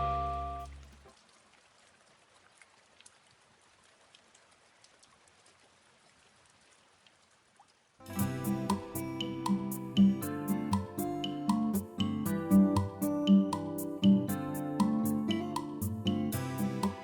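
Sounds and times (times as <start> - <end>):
music: 0.0 - 0.7, 8.0 - 17.0
faint hiss: 8.0 - 17.0.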